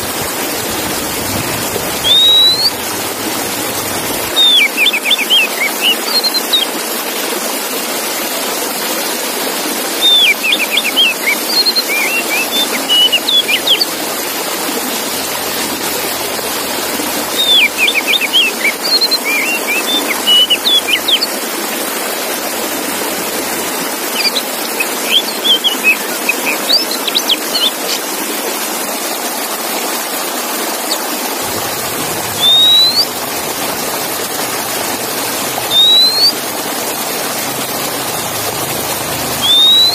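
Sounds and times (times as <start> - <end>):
bird singing whistled notes: 2.0 - 2.8, 4.2 - 6.7, 10.0 - 14.0, 17.3 - 21.3, 24.2 - 28.0, 32.3 - 33.3, 35.4 - 36.6, 39.4 - 39.9.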